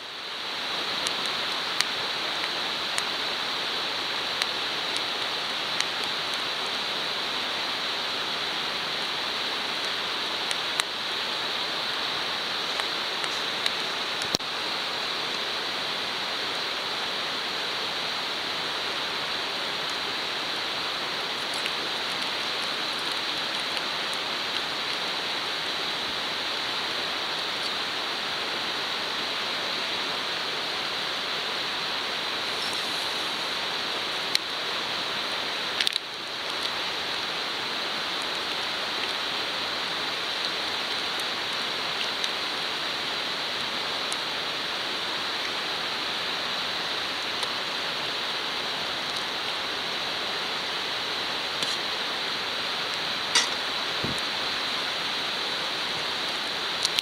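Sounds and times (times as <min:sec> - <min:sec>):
sharp fat pops: 0:53.4 - 0:54.2.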